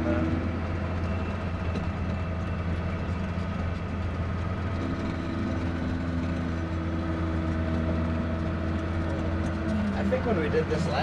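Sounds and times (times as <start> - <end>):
diesel engine drone: 0.0 - 11.0.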